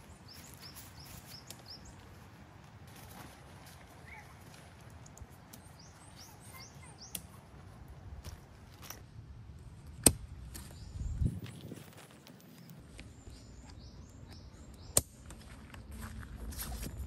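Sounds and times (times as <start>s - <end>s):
songbird chirping: 0.0s - 9.0s, 10.5s - 17.0s.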